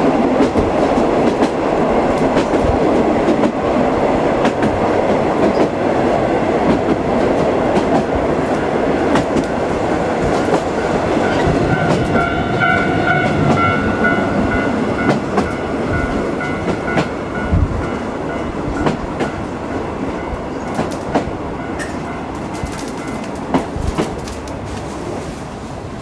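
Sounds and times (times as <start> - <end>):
train coach running noise: 0.0 - 26.0
wheels clacking over rail joints: 6.6 - 19.5
level-crossing warning bell: 10.6 - 21.0, 21.6 - 23.4.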